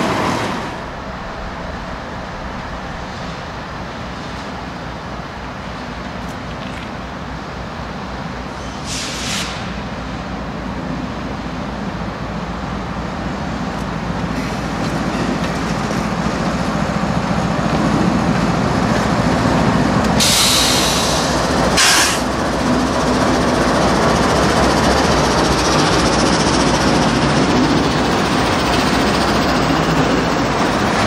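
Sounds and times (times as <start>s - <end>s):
train engine drone: 0.0s - 31.0s
short hisses: 8.8s - 9.8s, 20.2s - 22.3s.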